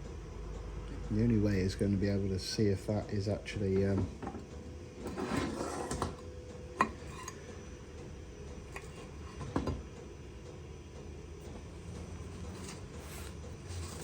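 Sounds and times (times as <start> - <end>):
metal tools scraping: 6.8 - 7.4.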